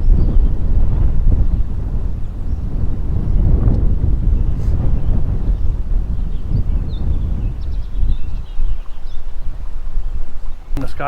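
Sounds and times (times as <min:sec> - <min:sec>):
low thunder rumble: 0:00.0 - 0:09.7
wind buffeting microphone: 0:00.0 - 0:11.0.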